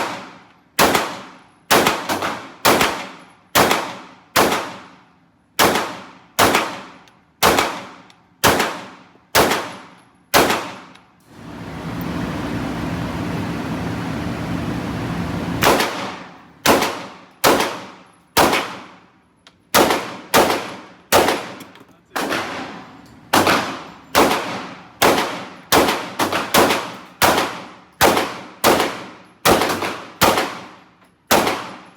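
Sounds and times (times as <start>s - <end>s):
gunshots: 0.0s - 4.9s, 5.6s - 10.9s, 15.6s - 19.0s, 19.7s - 31.9s
steady rushing noise: 11.3s - 16.1s.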